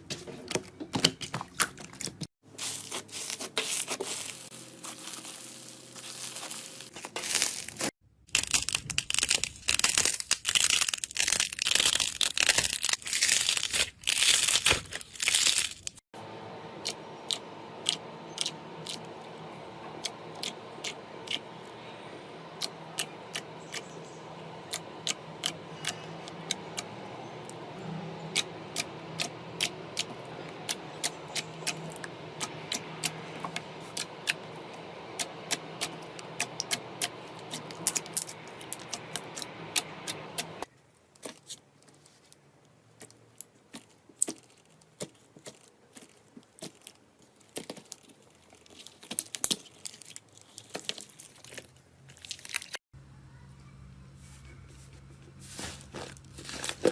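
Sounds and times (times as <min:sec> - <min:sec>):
steady hum: 0:16.2 - 0:40.7.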